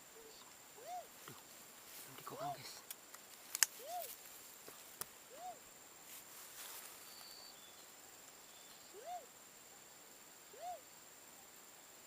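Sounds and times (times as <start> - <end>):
dove hooting faintly: 0.0 - 1.4, 3.8 - 4.2, 5.2 - 5.7, 6.7 - 9.8, 10.4 - 11.0.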